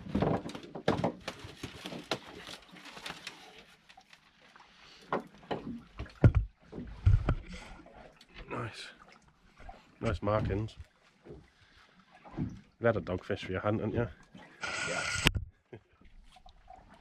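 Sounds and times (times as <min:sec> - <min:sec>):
knocks and clicks on boat: 0:05.1 - 0:07.5.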